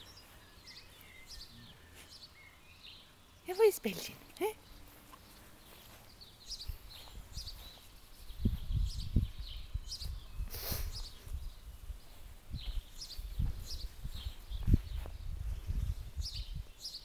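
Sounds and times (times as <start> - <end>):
birds chirping: 0.0 - 17.0
rustling hiss: 9.9 - 13.8.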